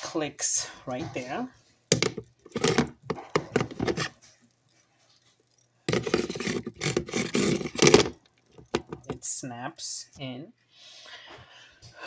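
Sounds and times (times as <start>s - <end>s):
plastic knocking and rubbing: 1.9s - 4.2s, 5.9s - 9.2s.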